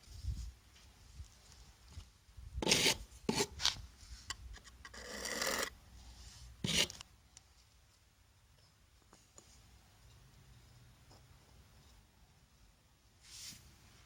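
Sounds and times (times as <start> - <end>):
hard object scraping rough surface: 2.6 - 3.6, 4.9 - 5.7, 6.3 - 7.0.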